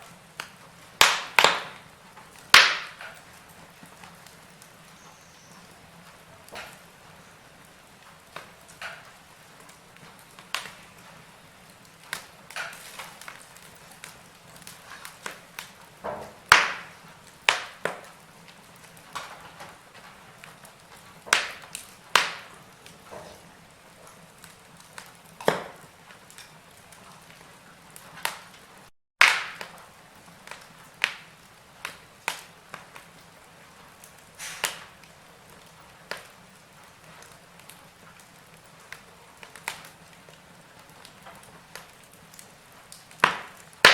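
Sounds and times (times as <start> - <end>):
faint steady hiss: 0.0 - 28.9
wood fire crackling and popping: 0.0 - 43.9.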